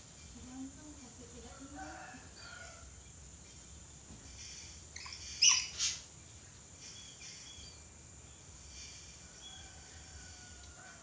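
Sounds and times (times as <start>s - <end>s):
faint bird chirps: 4.9s - 6.1s, 6.8s - 9.8s
parrot harsh screeches: 5.0s - 6.0s.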